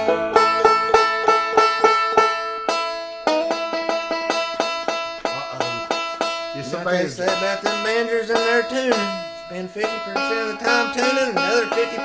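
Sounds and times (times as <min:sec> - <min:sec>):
banjo picking: 0:00.0 - 0:12.0
people talking: 0:05.3 - 0:06.0, 0:06.6 - 0:12.0.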